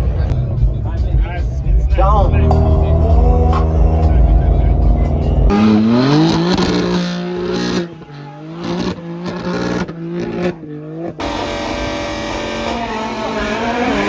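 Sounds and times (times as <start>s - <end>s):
car engines revving and accelerating: 0.0s - 14.0s.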